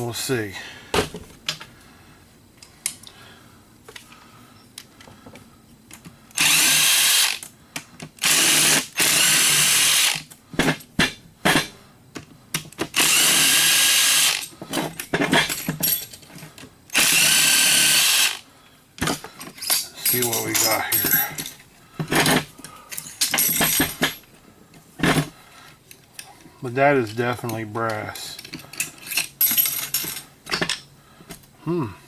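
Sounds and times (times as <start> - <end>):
power drill running: 6.4 - 7.4, 8.2 - 10.2, 13.0 - 14.5, 16.9 - 18.4
metal parts clattering: 14.4 - 16.5, 19.0 - 24.2, 28.2 - 30.9.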